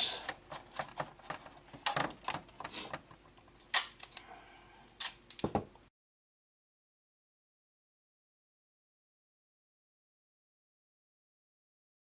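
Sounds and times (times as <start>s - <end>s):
tape crinkling and clicking: 0.2s - 4.3s
sharp tape snaps: 3.6s - 4.2s, 5.0s - 5.5s.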